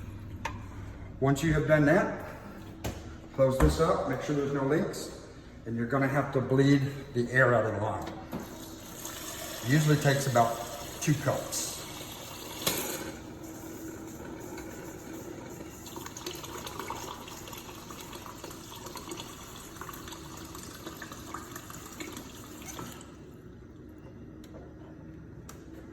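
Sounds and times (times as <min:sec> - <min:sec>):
water running into a cup: 0:08.4 - 0:23.2.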